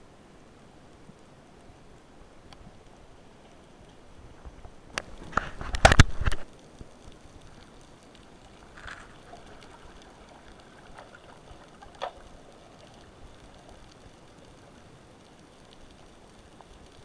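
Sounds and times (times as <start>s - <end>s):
soft clicks and crackles: 0.4s - 17.0s.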